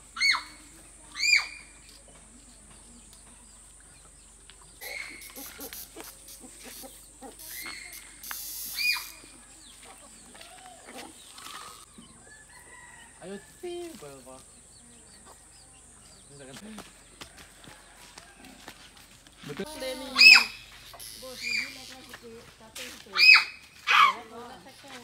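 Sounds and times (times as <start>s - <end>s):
sharp bird calls: 4.7s - 12.2s, 19.7s - 22.1s.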